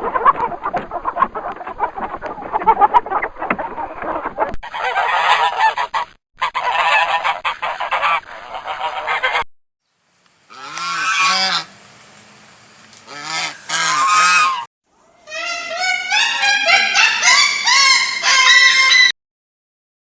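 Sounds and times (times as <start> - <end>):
geese honking: 0.0 - 9.4, 10.5 - 11.7, 13.1 - 14.7.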